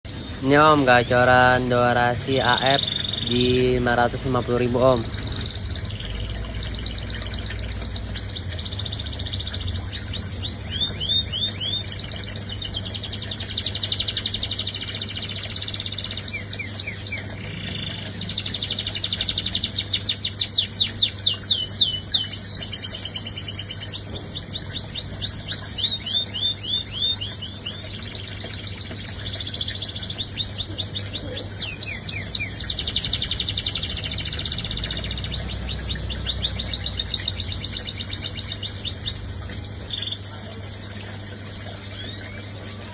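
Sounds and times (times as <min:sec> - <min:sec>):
canary singing trills: 0:00.1 - 0:42.9.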